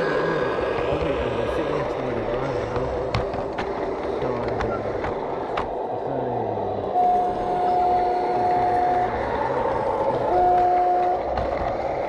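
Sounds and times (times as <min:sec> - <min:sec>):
model train two-tone horn blast: 0:07.0 - 0:09.2, 0:10.3 - 0:11.7.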